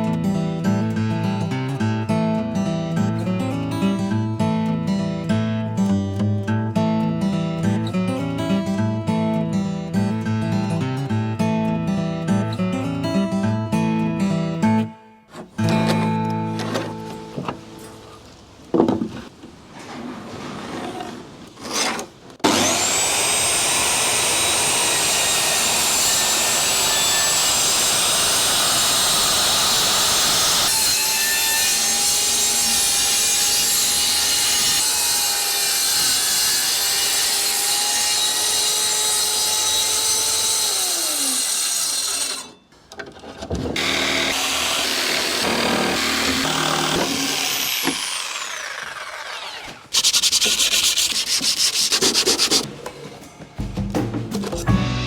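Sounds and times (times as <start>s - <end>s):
electric power saw cutting wood: 21.8s - 42.6s, 43.8s - 52.7s.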